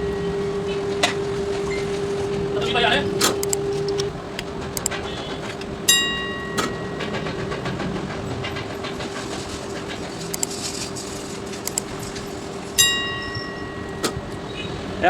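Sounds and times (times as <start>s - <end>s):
steady hum: 0.0s - 15.0s
bright metallic ring: 5.9s - 7.3s, 12.8s - 15.0s.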